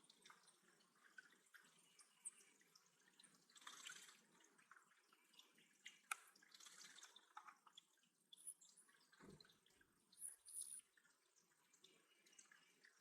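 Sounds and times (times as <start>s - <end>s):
water dripping and trickling: 0.0s - 13.0s.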